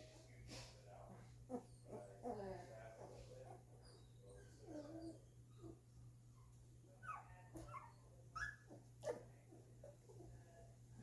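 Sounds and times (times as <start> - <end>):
puppies whimpering and squeaking: 1.5 - 5.9.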